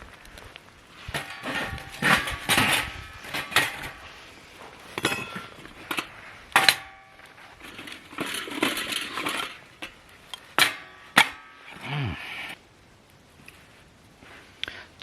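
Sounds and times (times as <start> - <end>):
metal scraping: 1.0 - 11.9.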